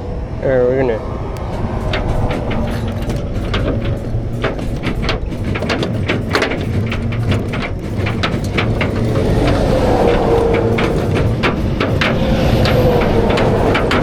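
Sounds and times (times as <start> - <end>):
clicks and knocks: 1.4 - 14.0
vehicle engine running: 1.4 - 14.0.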